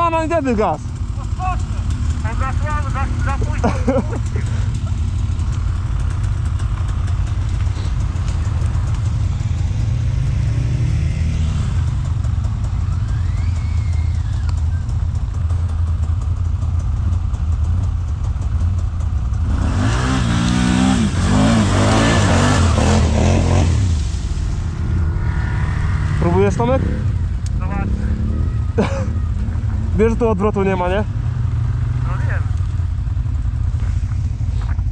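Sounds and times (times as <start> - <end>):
atv engine running and revving: 0.0 - 34.9.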